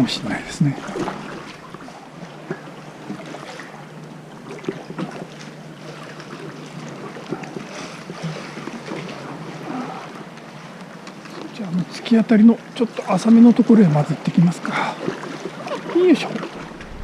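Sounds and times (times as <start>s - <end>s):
water lapping around kayak: 0.0s - 17.0s
low hum: 16.4s - 17.0s.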